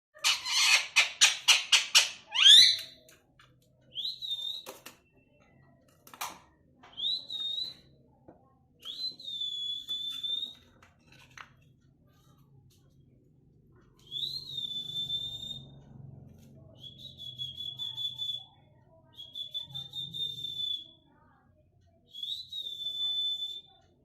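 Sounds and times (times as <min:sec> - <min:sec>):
parrot chirping and whistling: 0:00.2 - 0:02.9.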